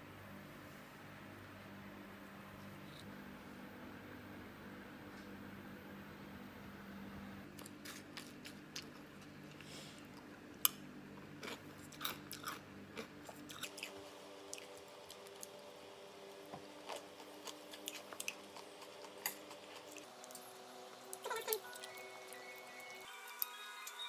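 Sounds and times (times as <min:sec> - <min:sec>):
faint steady hum: 0:00.0 - 0:24.0
chewing crisp food: 0:07.5 - 0:15.6, 0:16.6 - 0:20.5.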